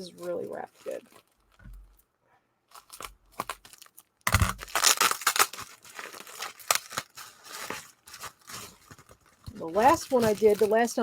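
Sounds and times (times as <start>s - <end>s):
bubble wrap crinkling: 0.0s - 2.1s, 2.7s - 11.0s
packing tape ripping: 2.7s - 11.0s.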